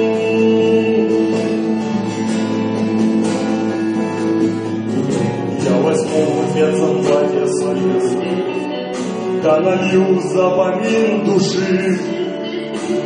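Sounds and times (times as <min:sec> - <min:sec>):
acoustic guitar playing chords: 0:00.0 - 0:13.0.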